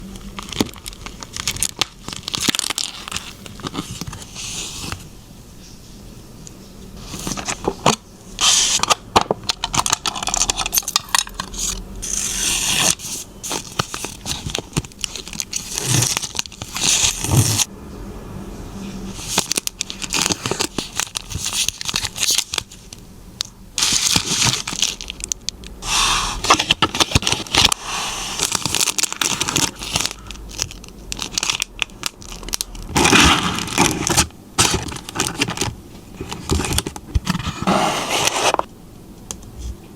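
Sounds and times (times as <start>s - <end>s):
plastic wrapping crinkling: 0.1s - 5.0s, 12.7s - 17.7s, 19.1s - 25.8s, 26.4s - 38.7s
plastic tearing and scraping: 0.2s - 5.0s, 7.0s - 10.8s, 11.4s - 17.7s, 19.1s - 23.0s, 23.8s - 38.7s.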